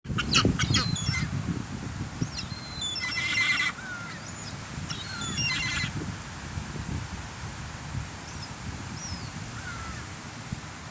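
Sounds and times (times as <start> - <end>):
seagulls squawking: 0.1 - 1.3, 2.4 - 4.2, 4.9 - 5.9.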